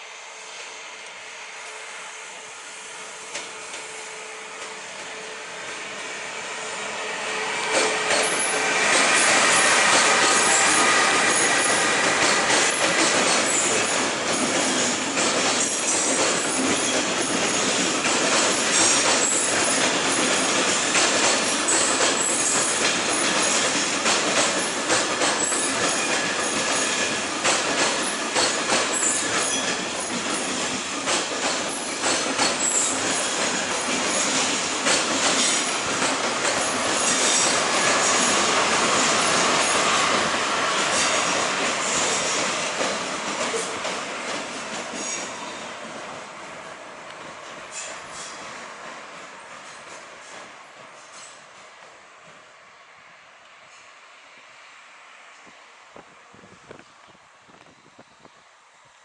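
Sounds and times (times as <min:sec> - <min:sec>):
train wheels clattering on rails: 0:03.2 - 0:04.0, 0:07.5 - 0:52.5
high wheel squeals: 0:07.5 - 0:13.8.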